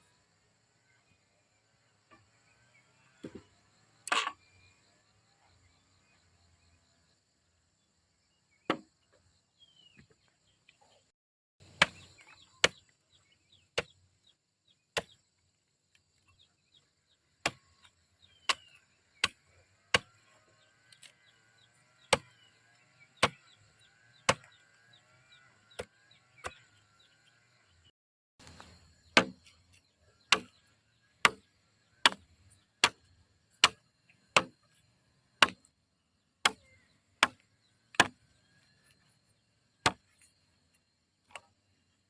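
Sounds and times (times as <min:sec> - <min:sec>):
blade chopping strokes: 0:28.4 - 0:29.6, 0:30.3 - 0:30.6, 0:38.0 - 0:38.2.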